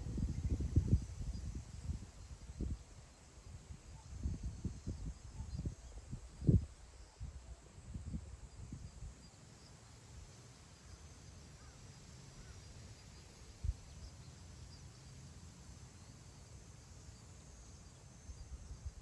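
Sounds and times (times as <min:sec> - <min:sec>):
wind buffeting microphone: 0:00.0 - 0:02.8.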